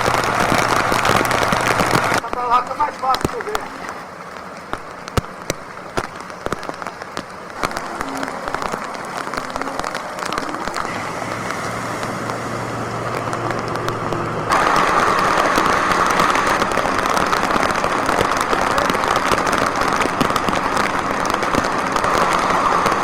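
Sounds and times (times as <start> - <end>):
rain falling: 0.0 - 23.0
low engine hum: 7.5 - 23.0.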